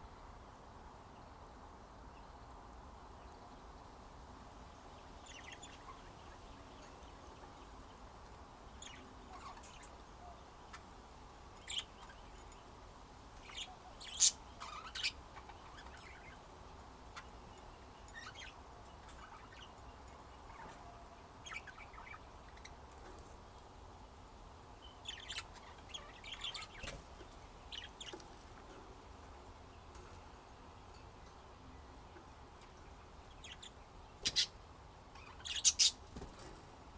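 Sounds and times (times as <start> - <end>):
budgerigars chirping: 13.4 - 16.5, 24.9 - 28.2, 33.3 - 36.0.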